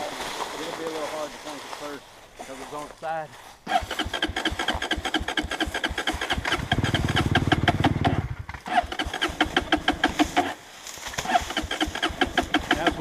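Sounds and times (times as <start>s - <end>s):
dirt bike engine cranking: 3.7s - 13.0s.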